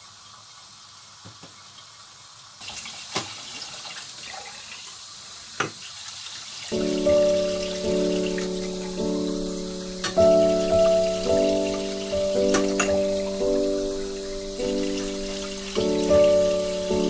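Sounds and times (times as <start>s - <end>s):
tap running into sink: 2.7s - 3.6s, 5.6s - 5.8s, 7.9s - 13.5s
background music: 6.8s - 17.0s.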